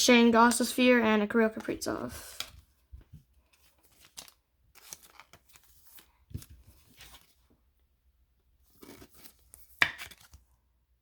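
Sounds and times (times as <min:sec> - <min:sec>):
trading cards rustling: 0:01.4 - 0:07.5, 0:08.7 - 0:10.5
cards tapping: 0:08.9 - 0:10.4.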